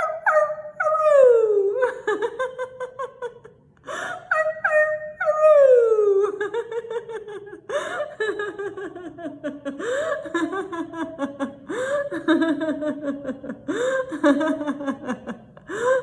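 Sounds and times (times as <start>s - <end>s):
woman howling: 0.0s - 2.2s, 4.2s - 6.8s
woman laughing: 0.8s - 16.0s.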